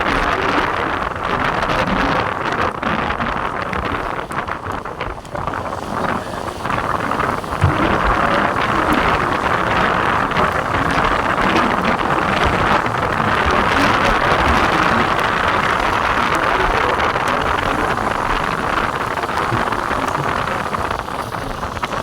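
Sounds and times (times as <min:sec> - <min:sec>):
heavy rain: 0:00.0 - 0:22.0
wind buffeting microphone: 0:00.0 - 0:22.0.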